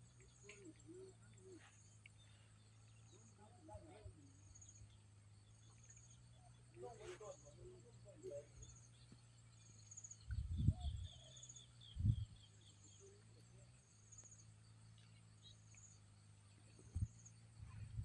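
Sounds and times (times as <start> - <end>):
insects chirping in high trills: 0.0 - 18.0
lower insect trill: 0.0 - 18.0
low rumble of wind on microphone: 8.4 - 12.7, 16.6 - 18.0.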